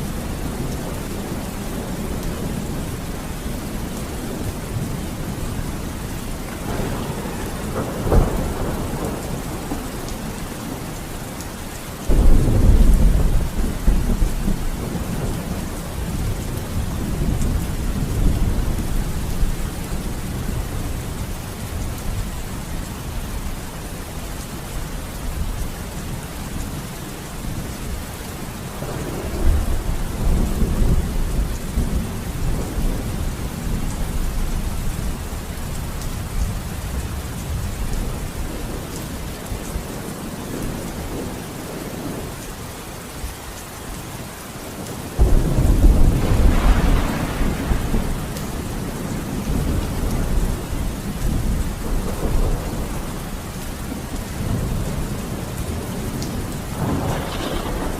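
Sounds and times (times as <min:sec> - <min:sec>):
thunder rumbling: 0:00.0 - 0:11.0, 0:12.1 - 0:22.2, 0:28.5 - 0:41.4, 0:45.2 - 0:57.9
steady rain: 0:00.0 - 0:57.9
thunderclap: 0:06.5 - 0:10.0, 0:12.1 - 0:18.9, 0:45.2 - 0:50.4, 0:51.2 - 0:52.9, 0:56.7 - 0:57.9.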